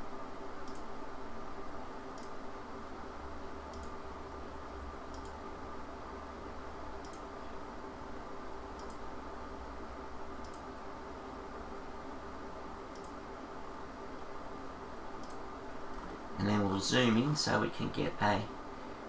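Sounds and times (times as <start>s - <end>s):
steady low hum: 0.0s - 19.0s
computer mouse clicking: 0.6s - 0.9s, 2.2s - 2.4s, 3.7s - 4.0s, 5.1s - 5.4s, 7.0s - 7.3s, 8.8s - 9.0s, 10.4s - 10.7s, 12.9s - 13.2s, 15.2s - 15.4s.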